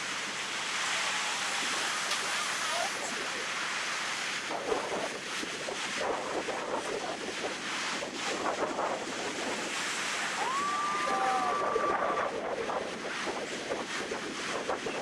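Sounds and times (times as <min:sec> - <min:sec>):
ocean surf washing on beach: 0:00.0 - 0:15.0
wind buffeting microphone: 0:04.4 - 0:15.0.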